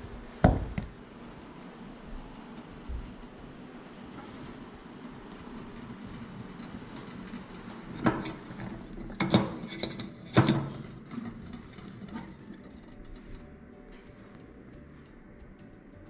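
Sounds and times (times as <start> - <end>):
metal coffee pot clanking on stove top: 6.9 - 12.5.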